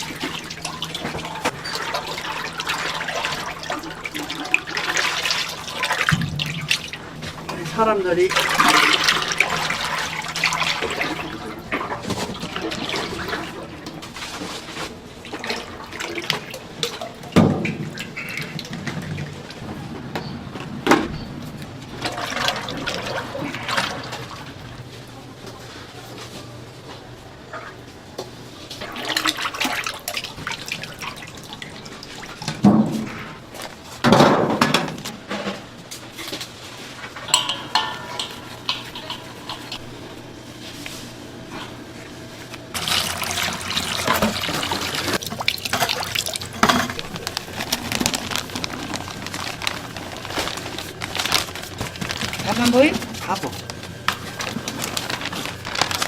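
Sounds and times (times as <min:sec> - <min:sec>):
water splashing and pouring: 0:00.0 - 0:19.6, 0:21.9 - 0:24.6, 0:28.8 - 0:33.4, 0:42.7 - 0:56.0
chicken deep-frying in oil: 0:42.7 - 0:56.0.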